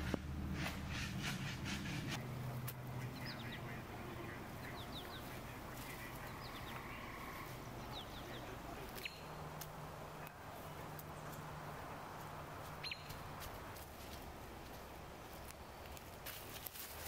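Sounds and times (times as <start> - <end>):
small birds chirping: 0.6 - 13.7.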